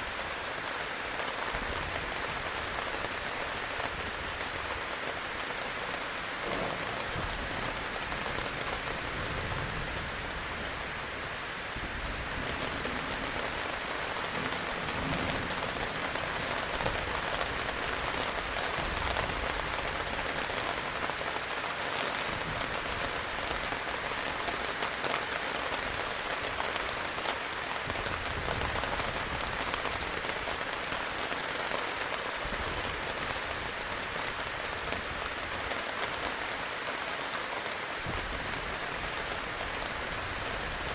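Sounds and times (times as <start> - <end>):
heavy rain falling: 0.0 - 40.9
raindrops striking a surface: 0.0 - 40.9.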